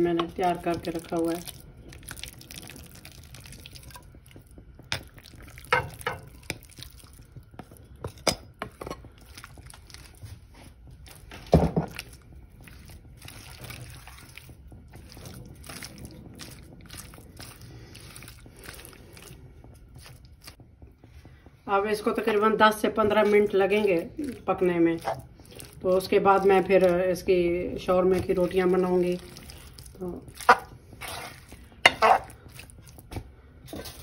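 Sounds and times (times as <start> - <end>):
spoon knocking and scraping pan: 4.9 - 6.6, 7.6 - 9.1, 30.4 - 32.8.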